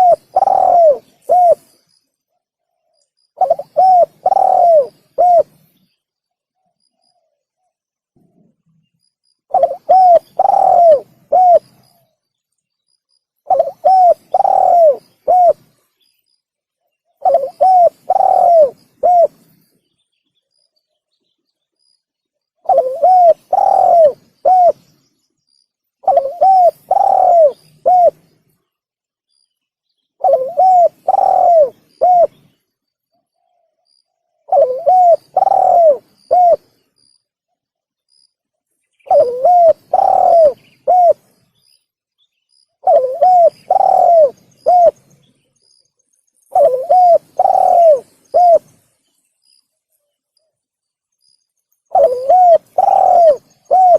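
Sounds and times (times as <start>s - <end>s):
dove cooing: 0.0s - 1.8s, 3.4s - 5.6s, 9.5s - 12.0s, 13.4s - 15.8s, 17.2s - 19.5s, 22.6s - 24.9s, 26.0s - 28.3s, 30.2s - 32.6s, 34.4s - 36.8s, 39.1s - 41.3s, 42.8s - 45.1s, 46.5s - 48.8s, 51.9s - 53.9s.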